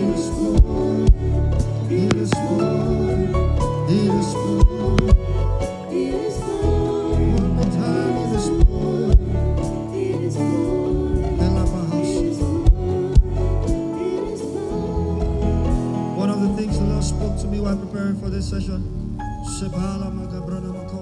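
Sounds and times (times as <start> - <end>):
person singing: 0.0 - 18.9
sustained keyboard chords: 0.0 - 21.0.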